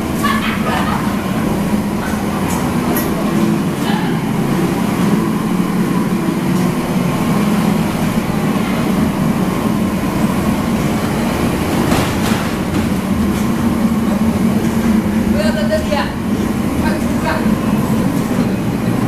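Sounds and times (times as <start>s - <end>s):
kitchen equipment mechanical drone: 0.0s - 19.0s.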